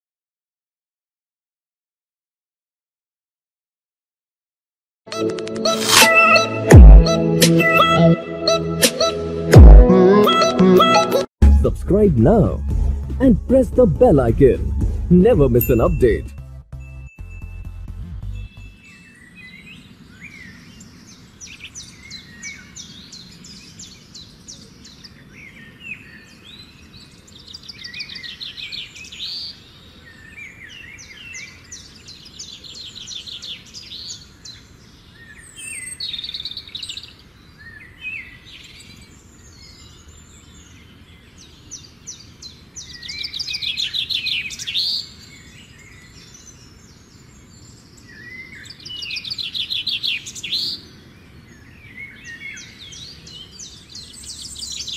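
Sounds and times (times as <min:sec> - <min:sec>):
songbirds singing: 0:18.3 - 0:54.9.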